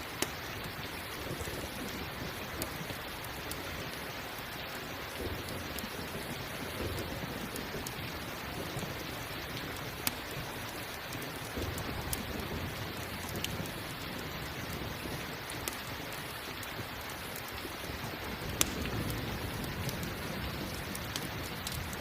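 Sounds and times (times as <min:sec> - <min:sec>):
campfire crackling: 0:00.0 - 0:22.0
steady rain: 0:00.0 - 0:22.0
low rumbles of thunder: 0:05.1 - 0:09.8, 0:11.4 - 0:15.5, 0:17.8 - 0:22.0.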